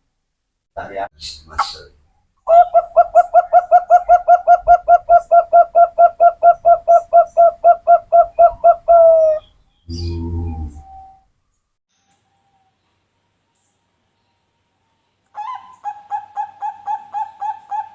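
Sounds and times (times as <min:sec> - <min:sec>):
dove cooing rapidly: 0:02.5 - 0:11.2, 0:15.4 - 0:17.9.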